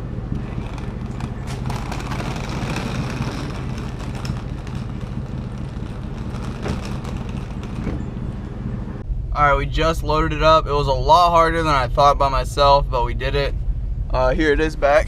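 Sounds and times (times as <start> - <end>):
knocks and rattles: 0.0 - 9.0
vehicle engine running: 0.0 - 9.3.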